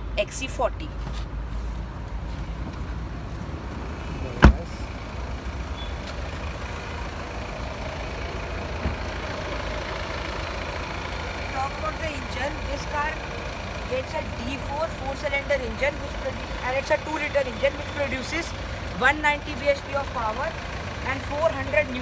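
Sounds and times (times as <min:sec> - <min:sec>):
diesel engine rumbling: 0:00.0 - 0:22.0
sharp thump: 0:04.4 - 0:04.7.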